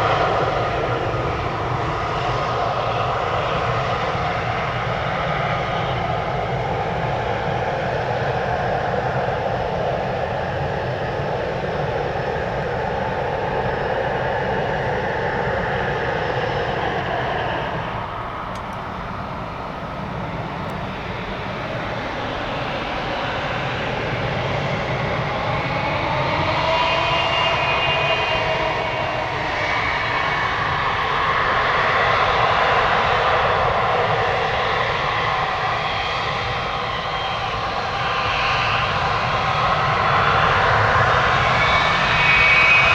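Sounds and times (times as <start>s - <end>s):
jet engines running: 0.0s - 42.9s.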